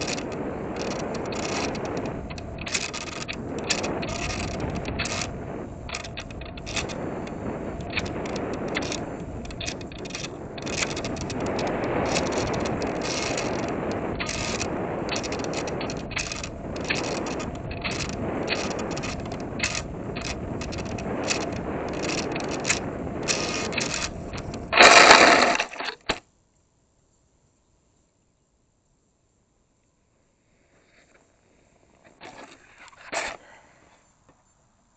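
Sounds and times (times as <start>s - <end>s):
rattling and scraping: 0.0s - 26.2s, 32.2s - 33.4s
short clicks and knocks: 5.9s - 26.2s.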